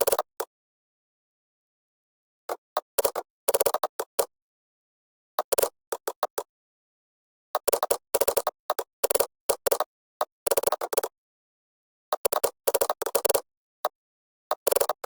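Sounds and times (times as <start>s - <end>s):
keyboard typing: 7.6s - 11.1s, 12.1s - 15.0s.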